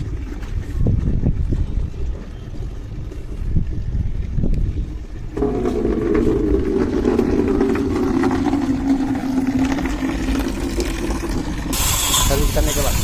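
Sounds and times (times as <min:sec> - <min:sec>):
low rumble on microphone: 0:00.0 - 0:11.7
small electric motor humming: 0:11.7 - 0:13.0.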